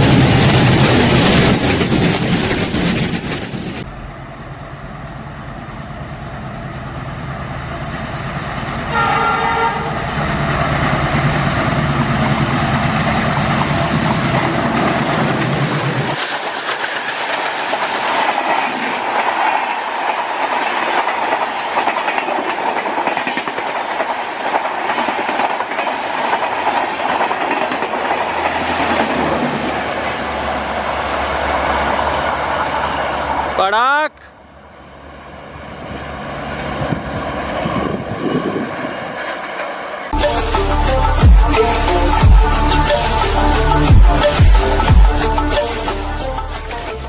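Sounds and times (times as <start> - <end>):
train wheels clattering on rails: 0.0 - 3.9, 10.0 - 33.0
diesel locomotive engine rumble: 0.0 - 47.0
train horn blast: 8.8 - 10.3.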